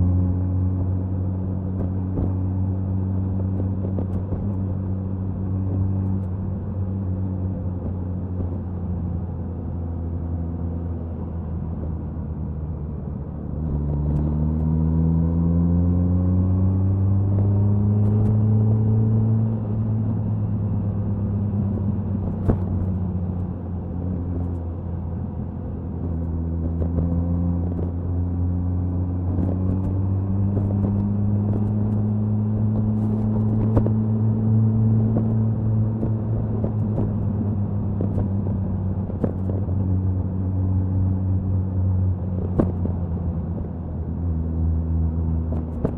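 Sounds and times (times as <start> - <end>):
wind noise: 29.2 - 44.2, 45.2 - 45.9.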